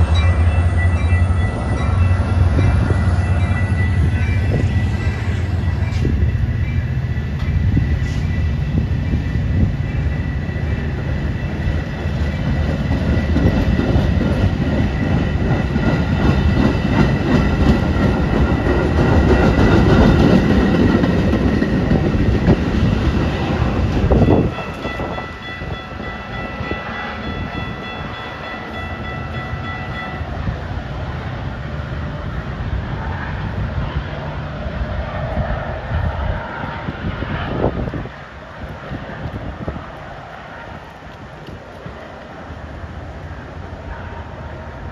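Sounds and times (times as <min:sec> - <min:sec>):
steady high-pitched tones: 0:00.0 - 0:12.8
train wheels rumbling on rail: 0:00.0 - 0:44.9.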